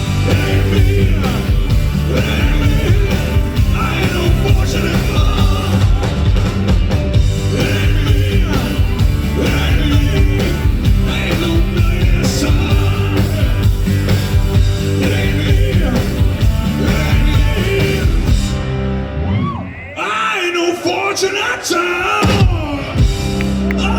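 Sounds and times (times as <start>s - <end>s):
rock band playing live: 0.0s - 19.5s, 22.1s - 23.9s
person singing: 0.1s - 6.3s, 7.4s - 13.7s, 14.9s - 18.4s.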